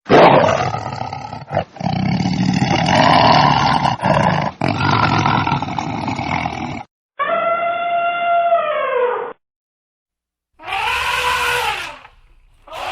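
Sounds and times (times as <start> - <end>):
animal roaring cries: 0.1 - 9.4, 10.6 - 12.9
pitched animal call: 7.2 - 9.4, 10.6 - 12.9.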